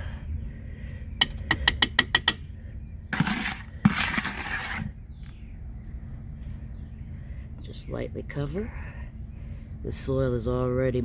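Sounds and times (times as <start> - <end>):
spoon scraping potting soil: 3.1 - 5.0.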